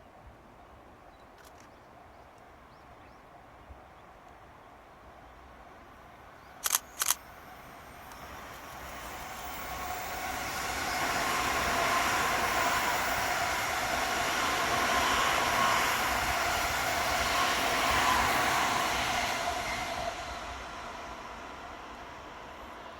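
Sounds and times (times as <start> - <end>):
electric train passing: 4.8 - 22.9
sharp clicks: 6.6 - 7.2.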